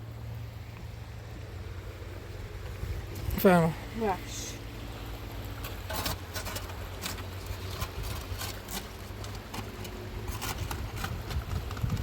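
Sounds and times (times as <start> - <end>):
storm wind rumbling on microphone: 10.6 - 12.0.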